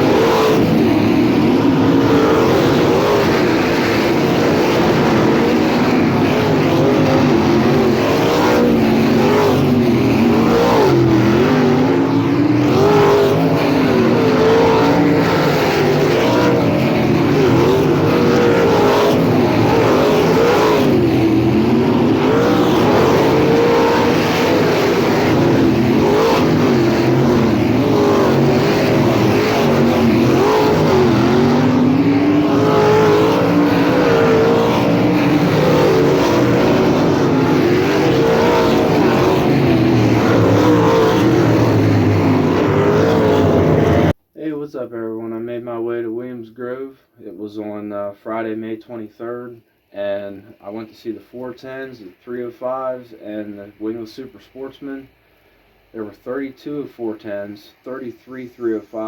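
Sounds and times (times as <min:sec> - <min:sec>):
race car engines: 0:00.0 - 0:44.2.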